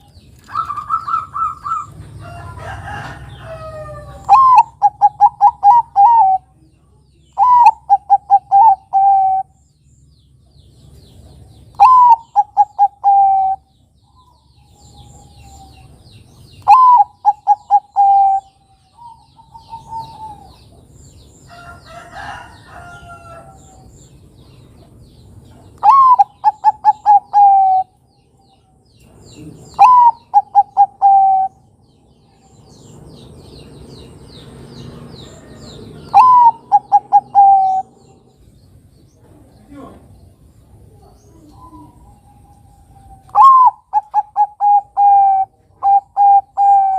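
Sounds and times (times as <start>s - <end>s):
dove cooing: 0.4s - 2.0s, 3.6s - 6.6s, 7.4s - 9.6s, 11.8s - 13.7s, 16.6s - 20.8s, 25.8s - 28.0s, 29.4s - 31.6s, 35.4s - 38.2s, 40.9s - 46.9s
faint high bird chirps: 25.5s - 46.9s
rough bird call: 25.8s - 28.0s, 34.8s - 38.4s, 41.5s - 46.9s.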